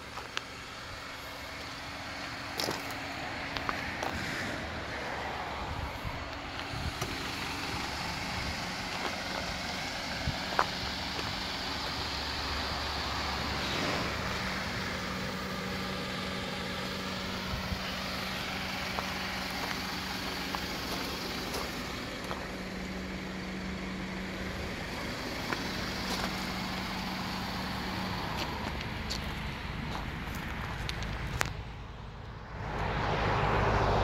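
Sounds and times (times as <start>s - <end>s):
car engine idling: 0.0s - 34.0s
footsteps on gravel: 0.1s - 0.5s, 1.5s - 4.3s, 8.8s - 9.6s, 10.4s - 12.0s, 18.0s - 23.0s, 25.3s - 31.6s.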